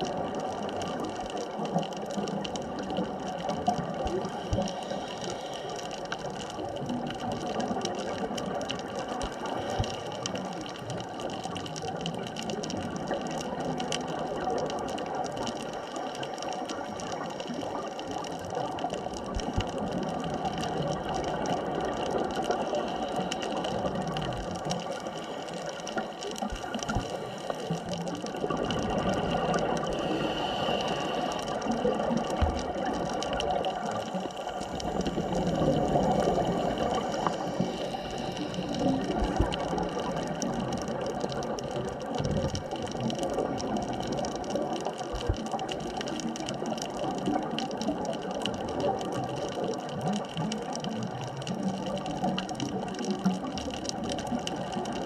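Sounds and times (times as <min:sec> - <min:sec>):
underwater watery hiss: 0:01.6 - 0:10.9, 0:14.4 - 0:42.1
constant tones: 0:14.2 - 0:45.5.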